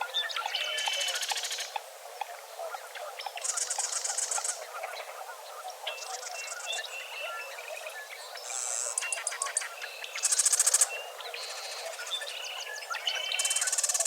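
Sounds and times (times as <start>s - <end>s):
bird chirps and calls: 5.9s - 14.0s.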